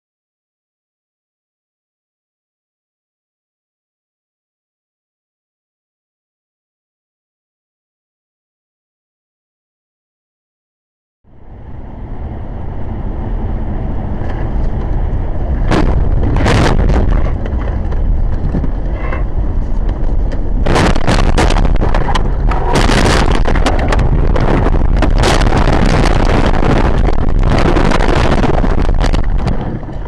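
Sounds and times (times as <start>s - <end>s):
road and wind rumble: 11.2s - 30.0s
knocks and rattles: 15.6s - 30.0s.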